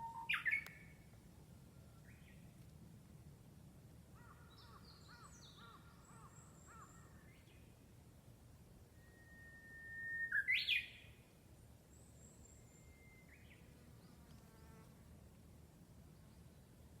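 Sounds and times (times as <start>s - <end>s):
bird singing: 0.0s - 1.0s, 4.2s - 7.7s, 9.0s - 11.2s, 11.9s - 14.2s.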